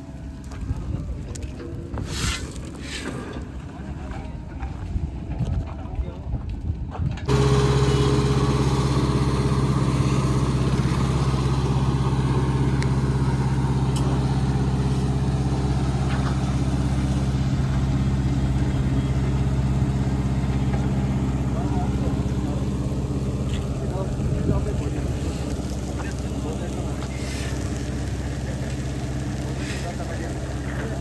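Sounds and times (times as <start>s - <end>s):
heavy machinery engine humming: 7.3s - 31.0s.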